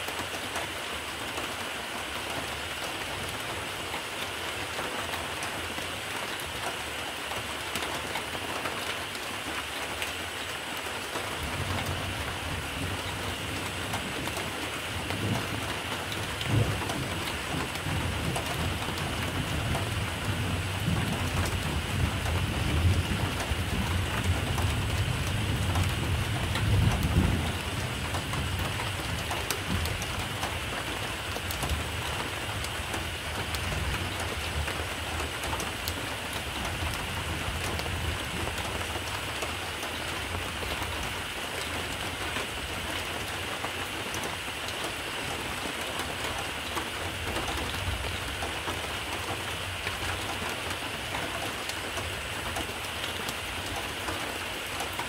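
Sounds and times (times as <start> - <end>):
steady rain: 0.0 - 55.0
thunder rumbling: 16.3 - 30.5.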